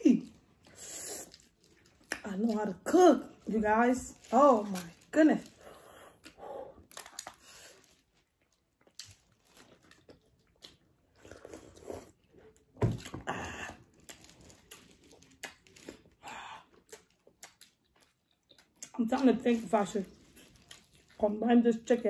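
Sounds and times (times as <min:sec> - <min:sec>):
person chewing food: 0:05.6 - 0:19.3, 0:20.1 - 0:21.2.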